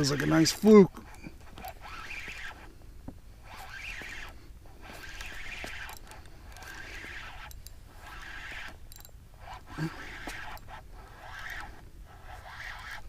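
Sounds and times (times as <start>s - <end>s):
fishing reel winding: 3.4s - 13.0s.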